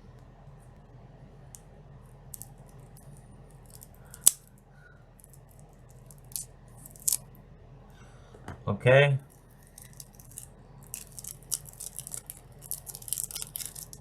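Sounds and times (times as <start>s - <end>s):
card packaging rustling and clicking: 9.4s - 14.0s.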